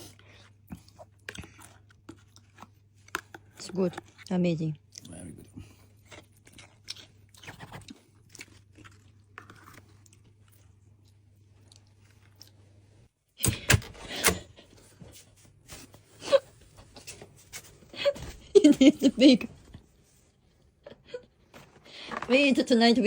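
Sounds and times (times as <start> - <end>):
crunching and chewing pastry: 0.0 - 13.1.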